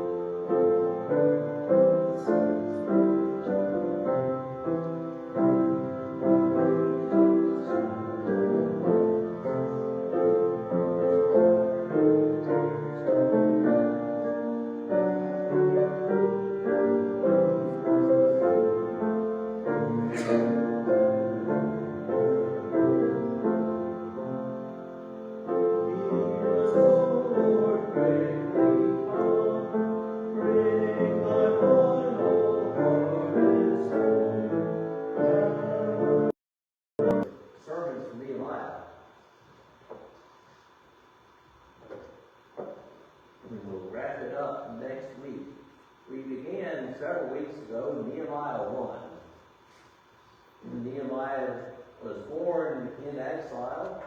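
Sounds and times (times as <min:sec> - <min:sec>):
piano playing chords and melody: 0:00.0 - 0:36.4, 0:37.0 - 0:37.3.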